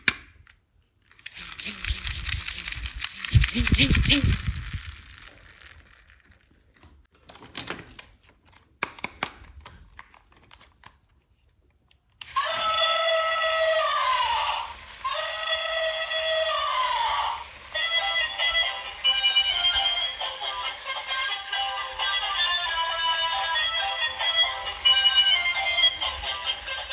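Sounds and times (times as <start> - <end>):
plastic toy pieces clicking: 0.0 - 6.1
toy playing synthesized tune: 15.1 - 26.9.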